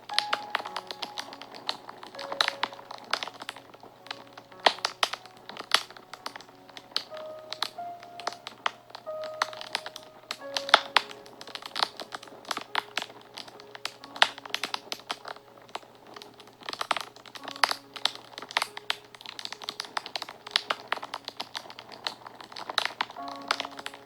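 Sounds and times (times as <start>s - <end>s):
soft background music: 0.0s - 24.0s
wood fire crackling and popping: 0.0s - 24.0s.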